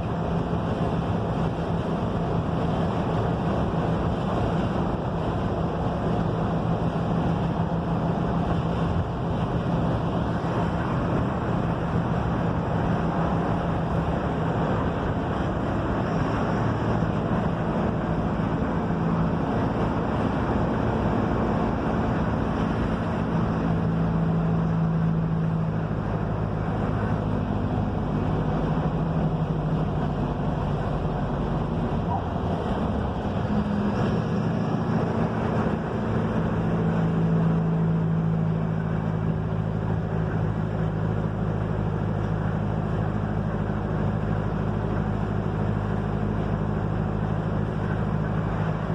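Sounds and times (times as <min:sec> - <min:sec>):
bus diesel engine running: 0:00.0 - 0:48.9
road and wind noise: 0:00.0 - 0:48.9.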